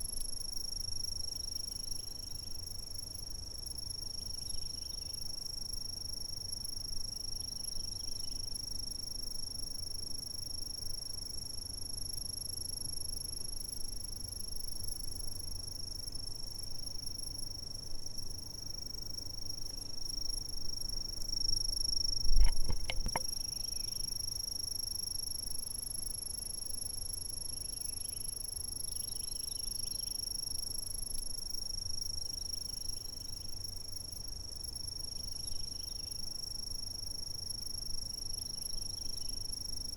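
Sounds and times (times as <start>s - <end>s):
insects trilling: 18.1s - 39.9s.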